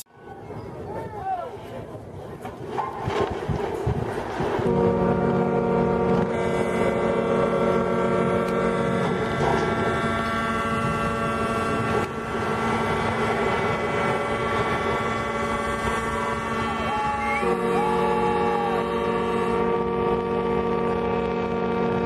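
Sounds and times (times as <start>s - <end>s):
ship horns blasting: 4.6s - 22.0s.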